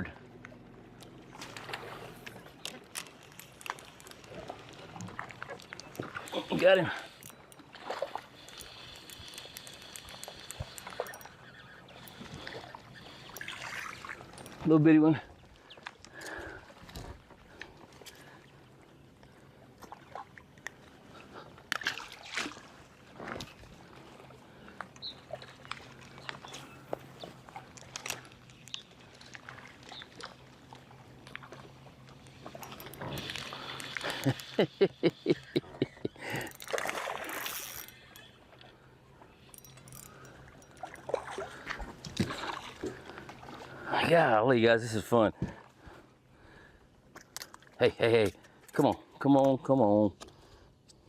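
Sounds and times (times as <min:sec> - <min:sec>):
faint scattered clicks: 0:00.4 - 0:07.6, 0:08.3 - 0:13.6, 0:24.8 - 0:43.4
man laughing: 0:34.0 - 0:36.6.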